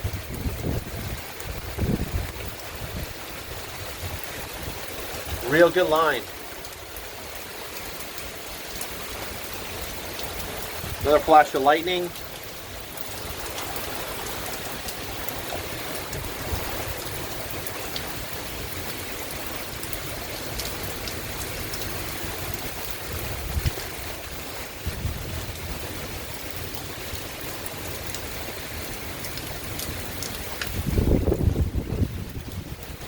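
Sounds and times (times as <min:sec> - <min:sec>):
low thunder rumbles: 0:00.0 - 0:05.5, 0:14.0 - 0:19.6, 0:22.2 - 0:26.7, 0:30.6 - 0:33.0
heavy rain hissing: 0:00.0 - 0:33.0
raindrops ticking: 0:00.0 - 0:33.0.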